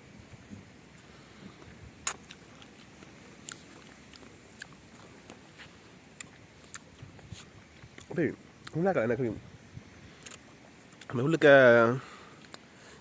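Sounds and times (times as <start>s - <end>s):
mouth sounds eating: 1.5s - 8.8s.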